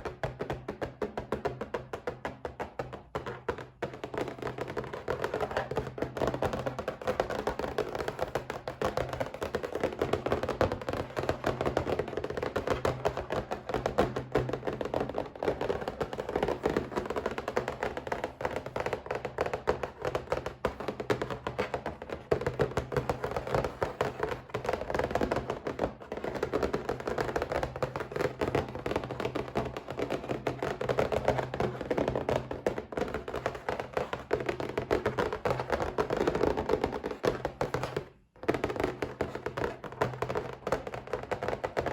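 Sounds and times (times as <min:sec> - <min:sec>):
rapid tapping on a box: 0:00.0 - 0:41.9.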